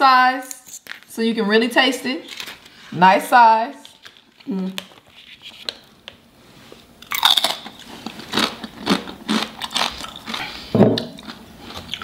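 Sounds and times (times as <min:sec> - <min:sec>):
chips crunching: 0:07.0 - 0:12.0.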